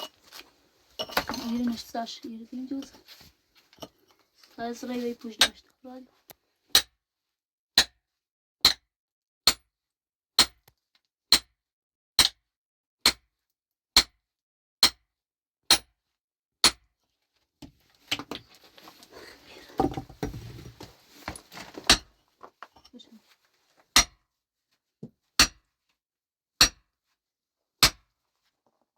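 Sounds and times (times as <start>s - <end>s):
scraping and shuffling: 0.0s - 6.2s, 17.7s - 23.9s.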